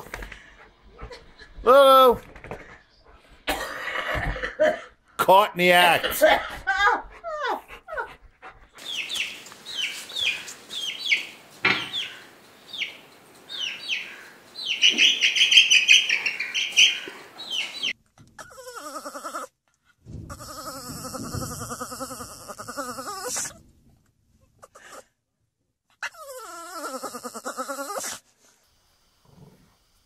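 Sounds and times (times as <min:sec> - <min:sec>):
steady hiss: 0:08.8 - 0:15.4, 0:28.1 - 0:30.0
small bird chirping: 0:08.8 - 0:19.4.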